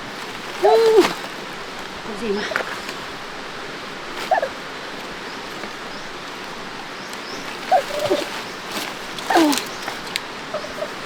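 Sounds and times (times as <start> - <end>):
steady background hiss: 0.0 - 11.0
short animal calls: 0.6 - 1.2, 4.2 - 4.6.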